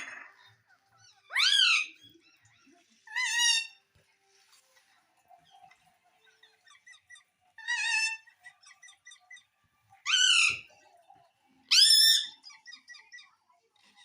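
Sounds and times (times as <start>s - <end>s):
parrot squawking: 0.0s - 3.8s, 6.4s - 10.7s, 11.7s - 13.4s
parrot chirps and chatter: 0.0s - 14.0s.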